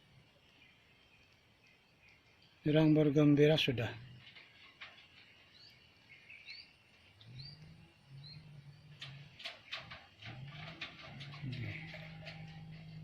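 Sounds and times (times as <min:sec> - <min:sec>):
bird chirping: 0:00.0 - 0:13.0
bird cooing: 0:07.2 - 0:13.0.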